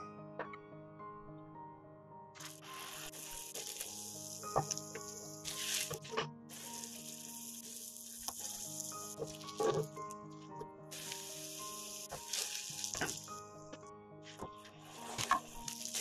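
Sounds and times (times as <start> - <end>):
pancake sizzling in oil: 2.4 - 10.1, 10.9 - 13.5, 14.8 - 16.0.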